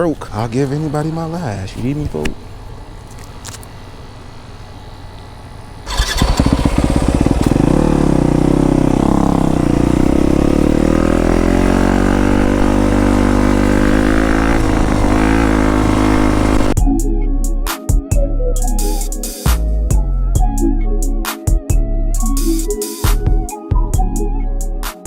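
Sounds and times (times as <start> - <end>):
dirt bike engine revving: 0.0 - 16.8.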